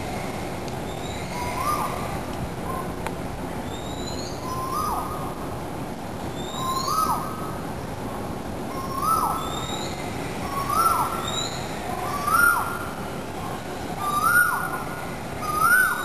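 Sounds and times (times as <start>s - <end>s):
outdoor background hiss: 0.0s - 16.0s
bird whistled call: 3.7s - 5.1s, 6.4s - 7.4s, 8.8s - 12.8s, 14.0s - 14.8s, 15.4s - 16.0s.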